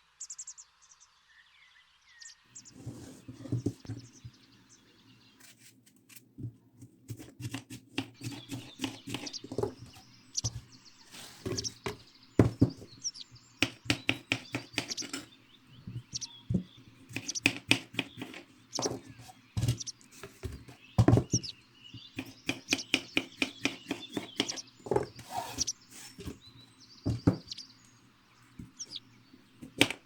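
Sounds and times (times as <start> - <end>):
faint bird chirps: 0.0 - 5.6, 7.4 - 30.0.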